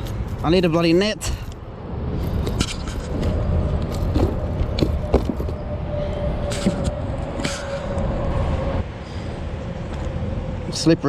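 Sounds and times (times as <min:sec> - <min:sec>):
steady low rumble: 0:00.0 - 0:11.0
knocks and handling noise: 0:02.2 - 0:05.6.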